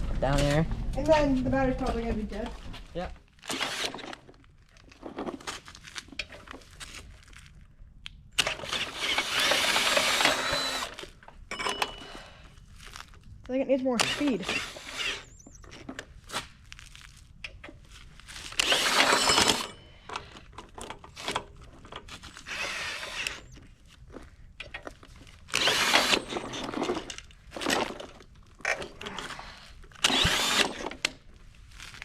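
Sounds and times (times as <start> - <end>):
cordless drill turning engine: 3.4 - 4.4, 8.4 - 12.4, 14.0 - 15.8, 18.5 - 23.7, 25.4 - 31.2.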